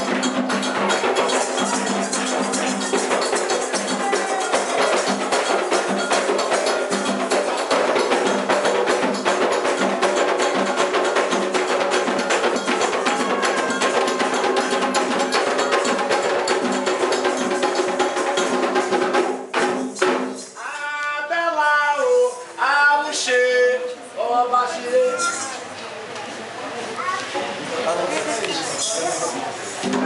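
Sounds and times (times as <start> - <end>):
hand drums: 0.0 - 22.3, 28.7 - 30.0.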